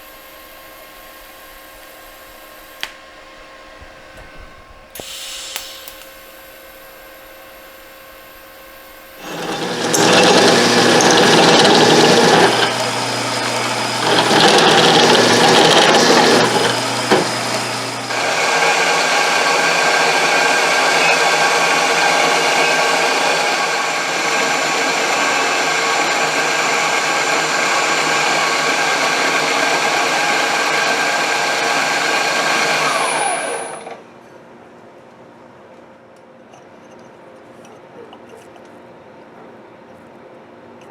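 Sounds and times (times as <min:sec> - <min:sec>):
power tool motor working metal: 0:05.0 - 0:34.0.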